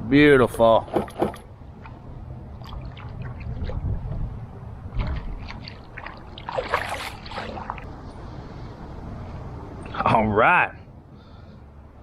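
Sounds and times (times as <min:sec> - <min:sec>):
wind rumbling on microphone: 0:00.0 - 0:10.0
gear knocking and rustling: 0:00.5 - 0:01.5.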